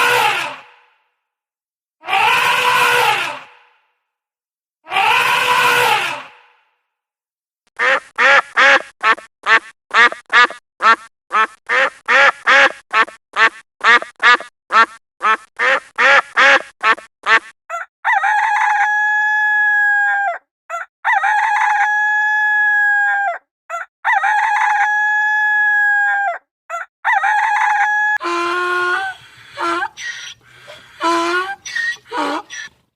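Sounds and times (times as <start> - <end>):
chicken clucking: 29.1 - 32.8.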